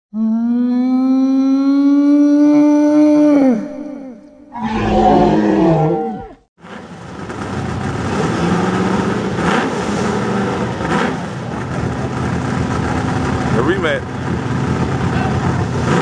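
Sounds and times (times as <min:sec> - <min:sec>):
drag racing engine running: 0:06.6 - 0:16.0.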